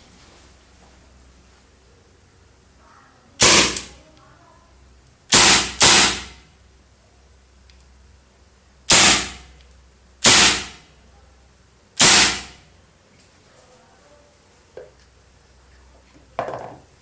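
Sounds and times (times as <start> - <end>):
airsoft revolver shots: 3.4 - 3.9, 5.3 - 6.4, 8.9 - 9.5, 10.2 - 10.8, 12.0 - 12.6.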